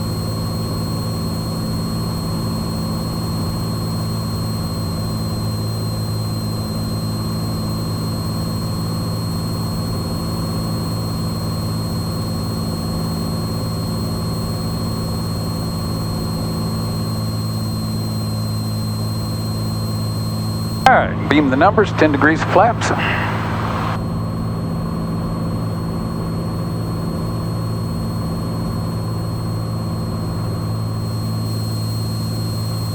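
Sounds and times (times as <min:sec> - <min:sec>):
aircraft engine droning: 0:20.9 - 0:24.0
high-pitched whines: 0:20.9 - 0:24.0.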